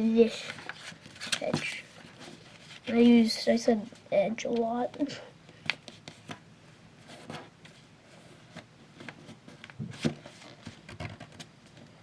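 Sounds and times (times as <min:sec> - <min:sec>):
thick paper rustling and folding: 0:00.2 - 0:03.3.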